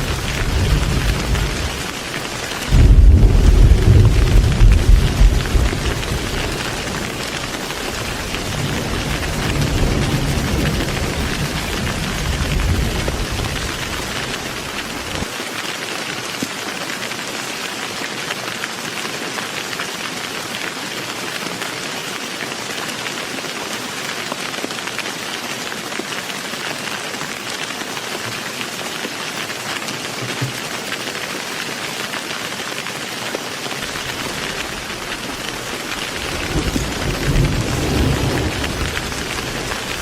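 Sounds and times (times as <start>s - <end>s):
low rumble of thunder: 0.0s - 1.9s, 2.7s - 15.3s, 33.9s - 40.0s
heavy rain falling: 0.0s - 40.0s.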